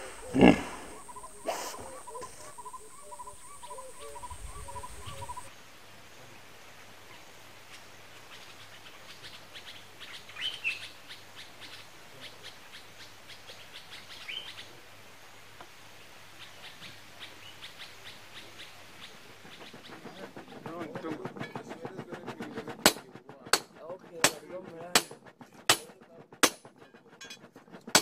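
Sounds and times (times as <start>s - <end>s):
birds chirping: 0.0s - 5.5s, 16.4s - 28.0s
rising bird call: 0.0s - 5.5s.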